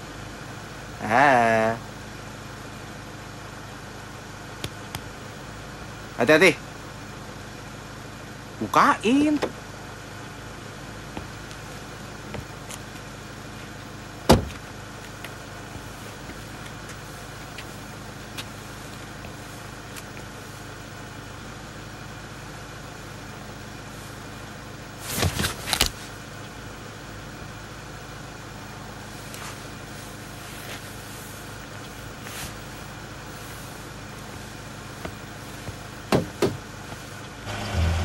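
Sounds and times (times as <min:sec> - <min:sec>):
car engine idling: 0:00.0 - 0:38.0
sharp engine knocks: 0:09.3 - 0:09.6, 0:12.2 - 0:13.0, 0:14.2 - 0:16.4, 0:35.0 - 0:37.0.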